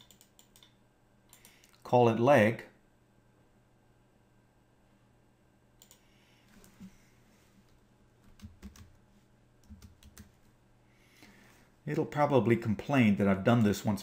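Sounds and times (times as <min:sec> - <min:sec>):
keyboard and mouse clicks: 0:00.0 - 0:01.8, 0:05.8 - 0:06.0, 0:08.2 - 0:08.9
low steady hum: 0:00.0 - 0:14.0.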